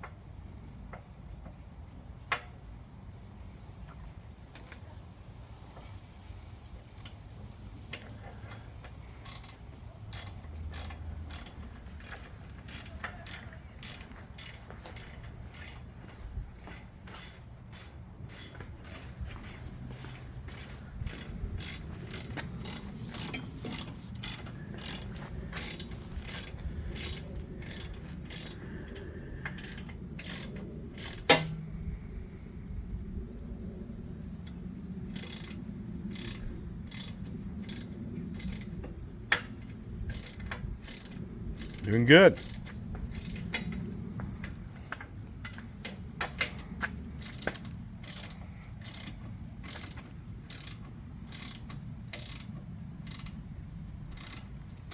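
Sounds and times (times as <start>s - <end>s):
socket ratchet clicking: 9.2s - 15.8s, 16.6s - 31.6s, 35.1s - 38.8s, 40.1s - 43.9s, 46.4s - 53.4s, 54.1s - 54.9s.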